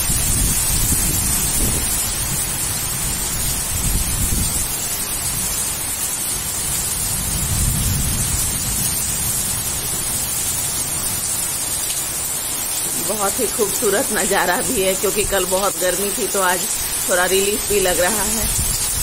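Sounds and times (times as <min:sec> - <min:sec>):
low thunder rumbles: 0:00.0 - 0:05.6, 0:06.4 - 0:11.6, 0:12.8 - 0:19.0
heavy rain: 0:00.0 - 0:19.0.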